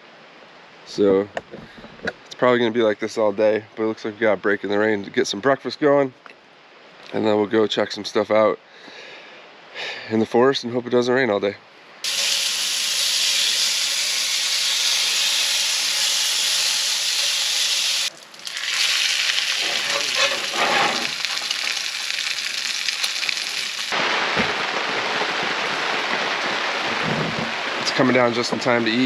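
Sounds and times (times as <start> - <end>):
food sizzling in a frying pan: 12.0 - 24.0.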